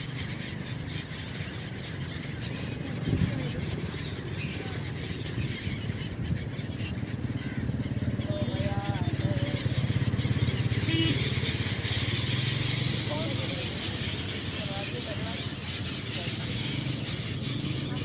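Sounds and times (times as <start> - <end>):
motor engine running: 0.1 - 18.0.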